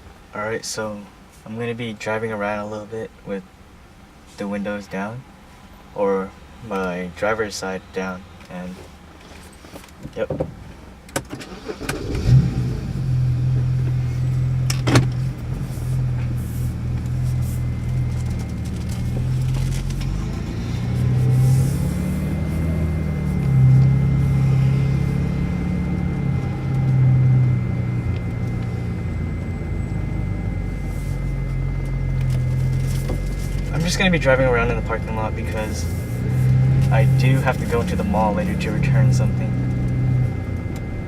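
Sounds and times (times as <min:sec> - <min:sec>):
car engine exhaust drone: 0:00.0 - 0:41.0.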